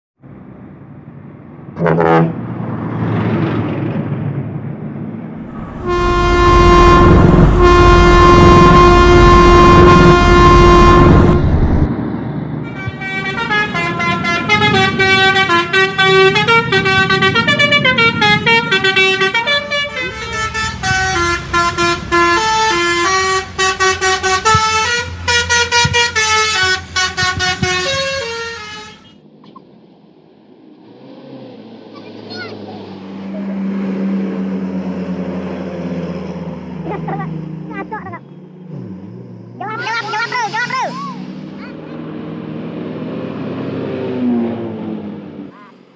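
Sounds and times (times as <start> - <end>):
truck engine rumble: 0.2 - 45.9
musical horn playing tune: 1.8 - 2.4, 5.5 - 11.9, 12.6 - 29.2
truck air horn blast: 1.8 - 2.4, 5.4 - 11.9, 12.6 - 29.2.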